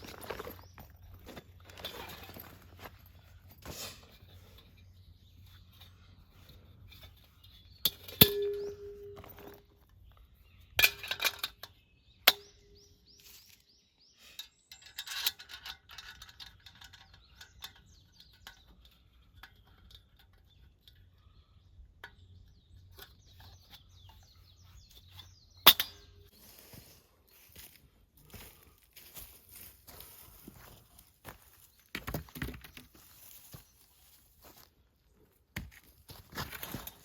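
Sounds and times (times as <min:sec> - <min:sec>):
short metallic ring: 0:07.9 - 0:09.6
faint bird chirps: 0:16.6 - 0:27.4.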